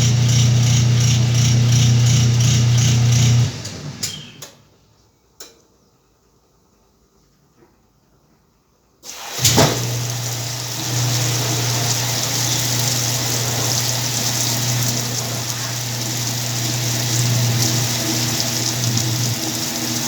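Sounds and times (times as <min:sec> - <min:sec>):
washing machine running: 0:00.0 - 0:04.4, 0:09.0 - 0:20.0.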